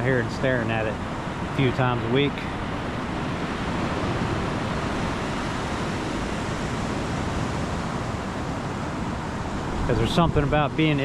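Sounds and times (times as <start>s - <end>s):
ocean surf on beach: 0.0s - 11.0s
wind on microphone: 0.0s - 11.0s.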